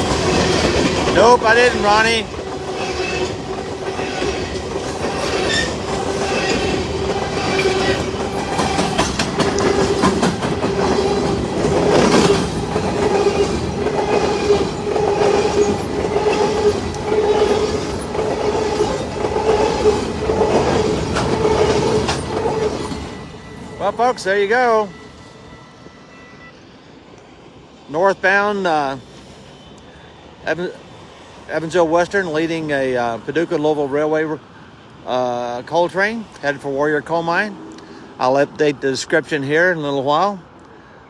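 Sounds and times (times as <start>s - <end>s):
train wheels clattering over rail joints: 0.0s - 24.8s.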